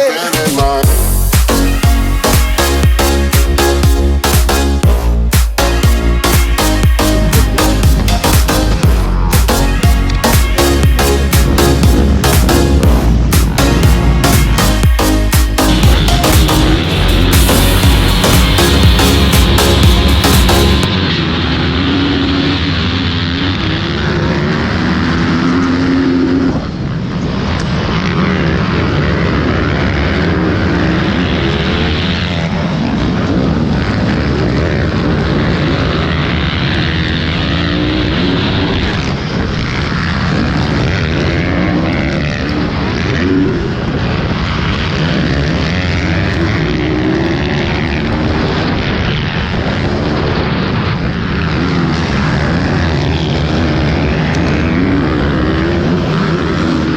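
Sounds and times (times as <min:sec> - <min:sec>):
small motorbike engines revving: 0:00.0 - 0:56.9.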